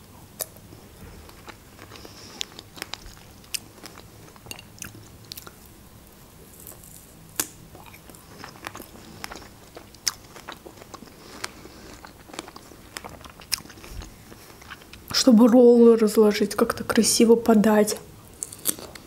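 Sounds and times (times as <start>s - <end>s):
person chewing food: 0.4s - 5.7s, 6.4s - 15.1s, 18.3s - 19.0s.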